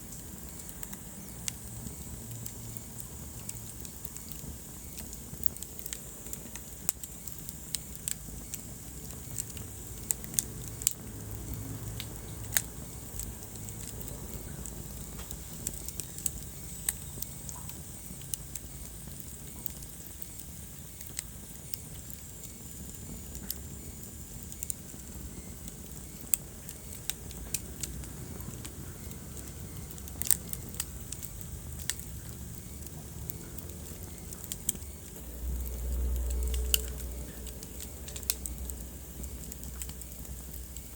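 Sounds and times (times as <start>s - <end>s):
fire crackling and popping: 0.0s - 40.9s
low rumble of flames: 0.0s - 40.9s.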